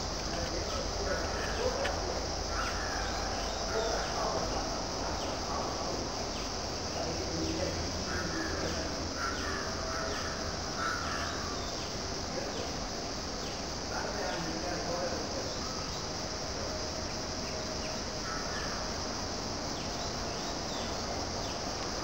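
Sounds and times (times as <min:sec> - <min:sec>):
birds calling: 0:00.0 - 0:06.7, 0:07.3 - 0:16.2
steady high hiss: 0:00.0 - 0:22.0.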